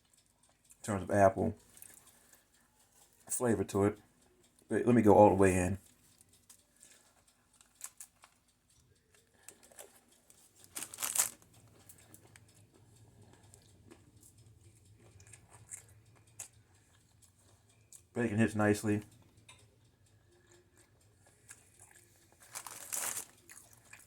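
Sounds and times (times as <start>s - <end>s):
chewing a toasted sandwich: 0.0s - 0.9s, 1.5s - 3.4s, 5.8s - 18.2s, 19.0s - 24.0s
crinkling sounds: 1.6s - 3.3s, 5.8s - 18.1s, 20.5s - 24.0s
tearing bite: 22.4s - 24.0s.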